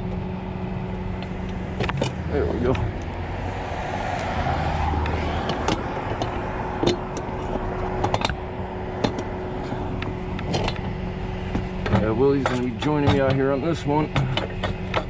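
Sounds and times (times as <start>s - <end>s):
vehicle engine running: 0.0s - 15.0s
sharp clicks and knocks: 5.0s - 9.3s, 10.0s - 15.0s.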